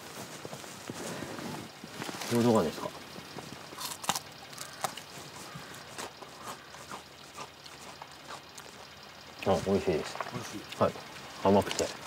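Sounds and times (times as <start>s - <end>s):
crunching of chewing stalk: 3.6s - 8.9s.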